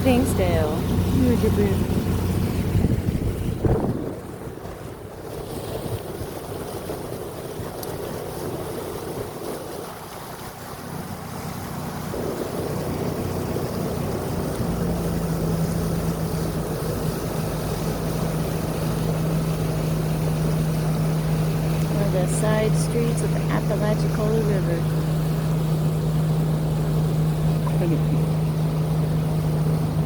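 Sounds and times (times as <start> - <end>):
wind on microphone: 0.0 - 20.7
motorboat engine droning: 0.0 - 30.0
rushing water: 0.0 - 30.0.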